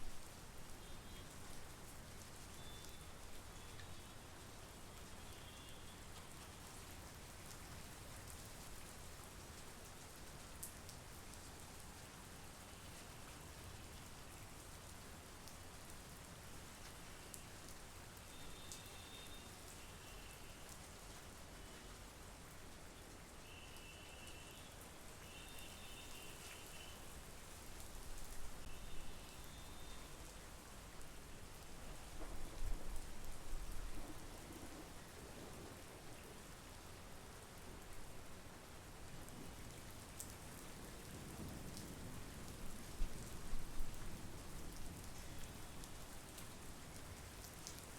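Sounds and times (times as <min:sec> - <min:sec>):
rain falling on lake and trees: 0:00.0 - 0:47.9.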